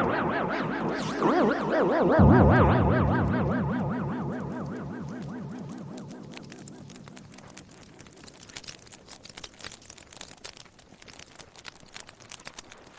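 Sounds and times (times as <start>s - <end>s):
faint irregular crackling: 4.3s - 12.9s.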